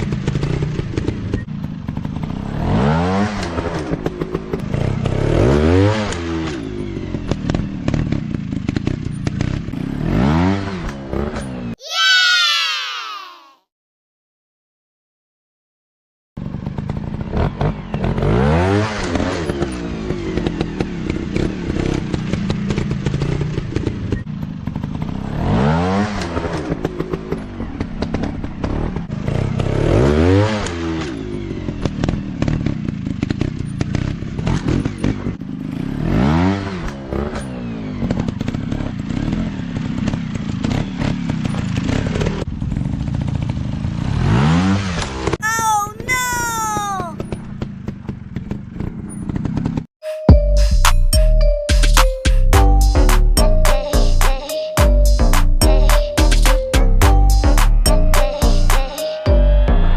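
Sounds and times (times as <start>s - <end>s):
steady engine drone: 57.0s - 59.9s.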